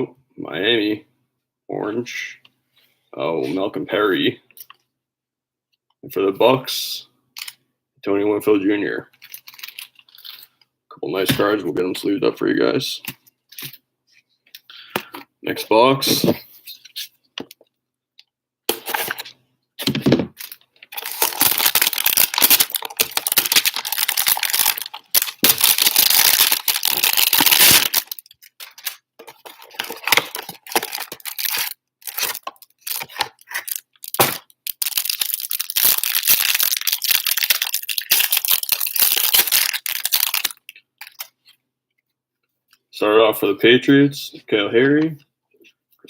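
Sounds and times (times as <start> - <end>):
plastic wrapping crinkling: 9.2 - 10.5, 18.8 - 41.5.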